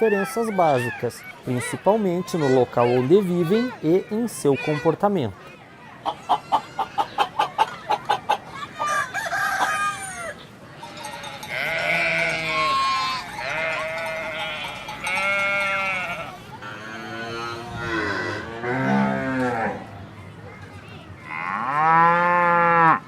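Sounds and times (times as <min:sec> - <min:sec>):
hen clucking: 0:06.0 - 0:10.4
long wavering bleats: 0:11.4 - 0:19.8.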